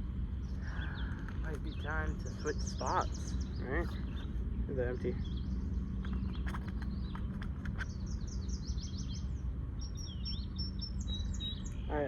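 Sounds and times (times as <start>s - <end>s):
songbird chirping: 0.0s - 12.0s
steady low rumble: 0.0s - 12.0s.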